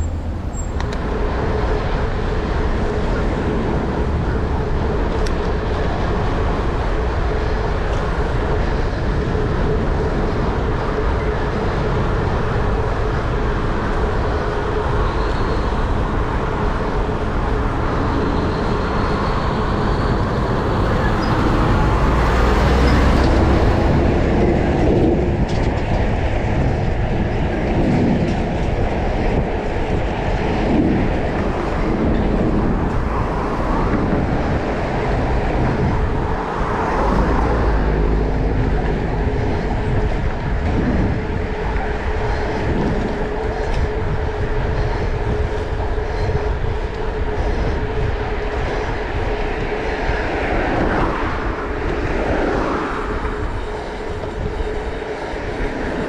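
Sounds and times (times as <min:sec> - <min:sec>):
moving vehicle rumble: 0:00.0 - 0:56.0.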